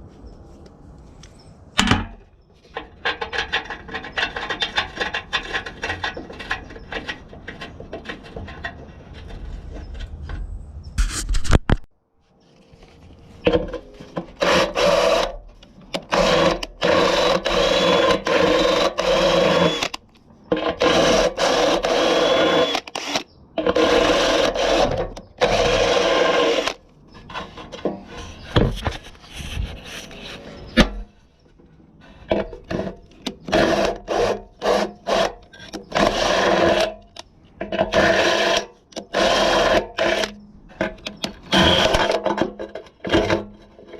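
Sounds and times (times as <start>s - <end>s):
power tool motor running: 20.8s - 23.2s.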